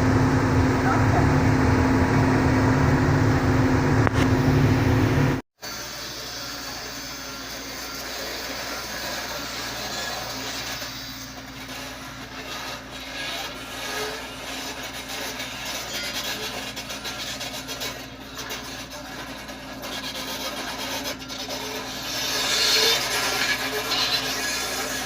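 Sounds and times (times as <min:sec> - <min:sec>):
excavator running: 0:00.0 - 0:05.4
rough rubbing and scraping: 0:05.6 - 0:25.0.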